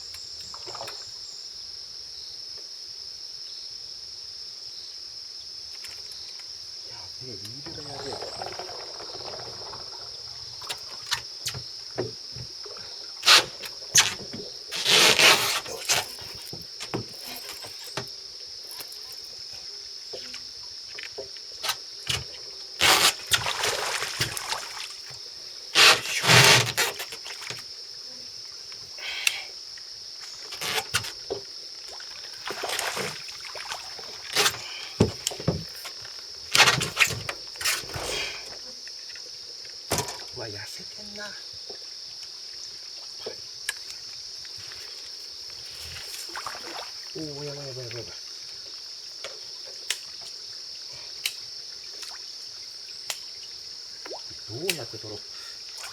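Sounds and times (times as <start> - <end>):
high-pitched insect drone: 5.8 - 36.2
fish splashing beside boat: 7.5 - 18.9, 21.6 - 27.7, 30.5 - 38.6, 45.7 - 47.3.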